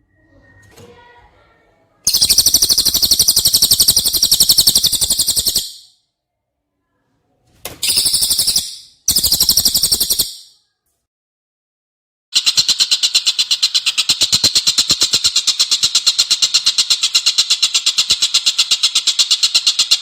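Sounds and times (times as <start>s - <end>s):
songbird rattling trills: 2.1s - 5.9s, 7.8s - 10.5s.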